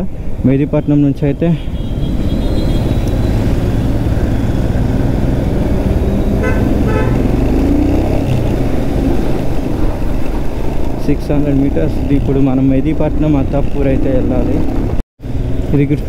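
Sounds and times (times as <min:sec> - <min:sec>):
road noise: 0:00.0 - 0:16.0
vehicle horn toots: 0:01.6 - 0:03.4, 0:06.2 - 0:07.4
motorcycle engine running: 0:02.2 - 0:10.8.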